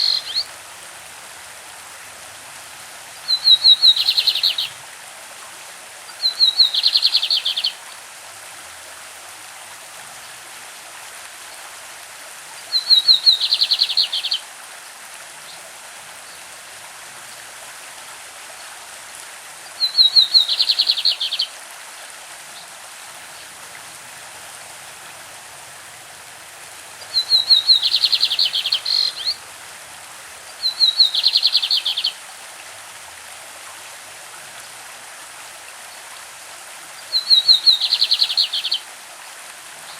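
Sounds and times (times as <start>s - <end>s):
stream running: 0.0s - 39.9s
bird song with buzzy trill: 3.3s - 4.7s, 12.8s - 14.4s, 27.2s - 29.4s, 37.1s - 38.8s.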